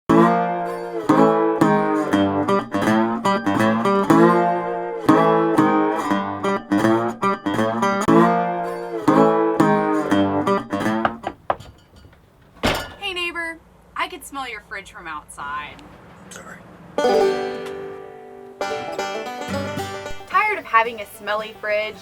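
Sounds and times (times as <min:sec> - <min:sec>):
acoustic guitar music: 0:00.1 - 0:13.5, 0:17.0 - 0:22.0.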